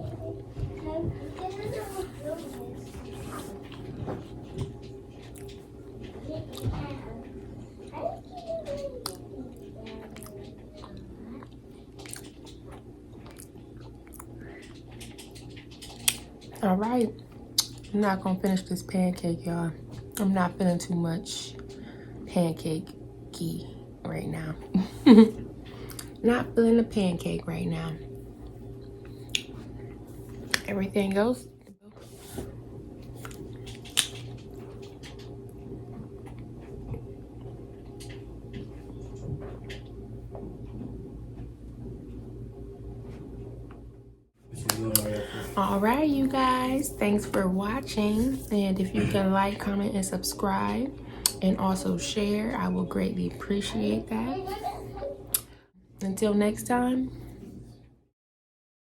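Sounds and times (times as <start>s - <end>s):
steady low hum: 0.0s - 57.9s
person chewing food: 2.9s - 5.9s, 9.0s - 16.3s, 33.1s - 34.3s
person chewing: 10.0s - 14.3s, 33.2s - 34.2s.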